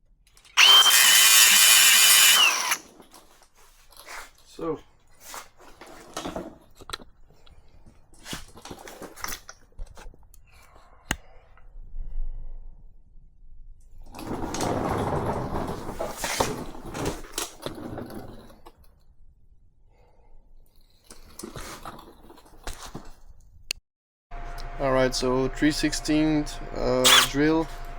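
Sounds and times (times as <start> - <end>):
rustling and scraping: 2.5 - 10.2, 14.2 - 18.9.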